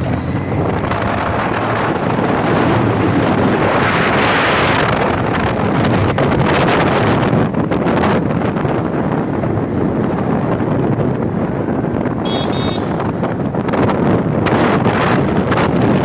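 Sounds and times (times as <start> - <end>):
vehicle rumble: 0.0 - 16.0
wind buffeting microphone: 0.0 - 16.0
short high-pitched beeps: 12.3 - 13.0.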